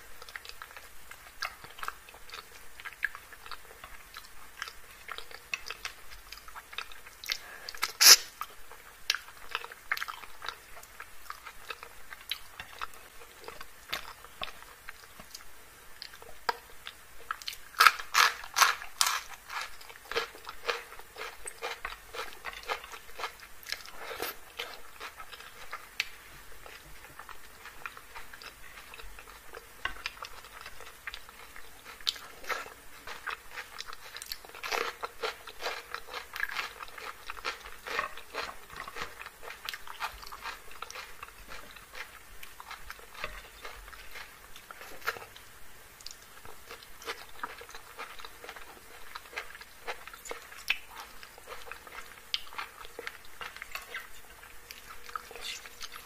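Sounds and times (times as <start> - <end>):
chewing and mouth clicks: 0.2 - 45.4, 46.0 - 56.0
crunching raw chili: 17.3 - 45.4.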